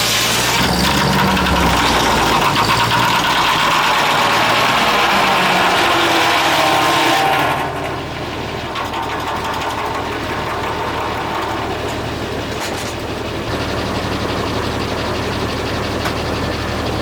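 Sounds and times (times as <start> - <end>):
saw cutting noise: 0.0 - 12.1
circle sawmill running: 0.0 - 17.0.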